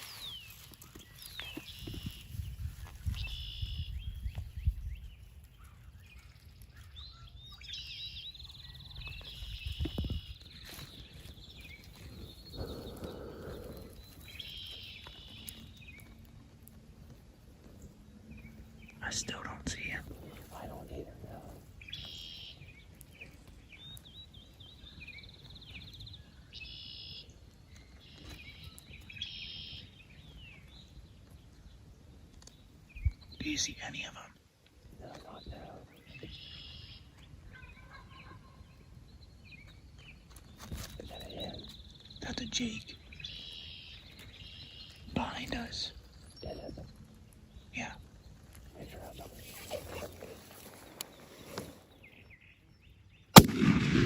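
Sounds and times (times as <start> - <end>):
songbirds singing: 0.0 - 54.0
steady low rumble: 53.4 - 54.0.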